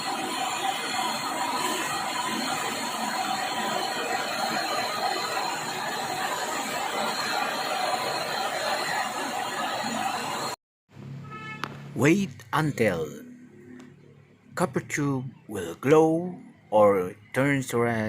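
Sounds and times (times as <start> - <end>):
gas torch flame hissing: 0.0 - 10.6.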